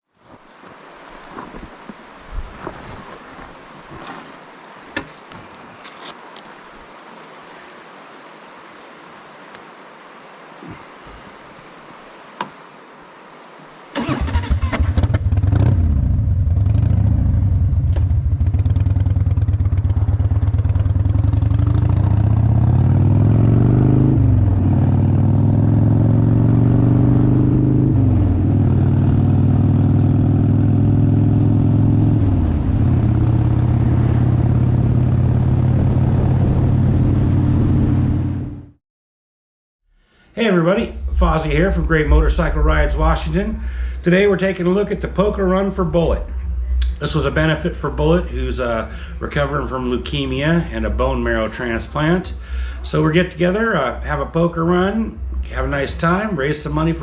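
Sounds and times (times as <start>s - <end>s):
motorcycle engine accelerating: 14.0s - 38.8s.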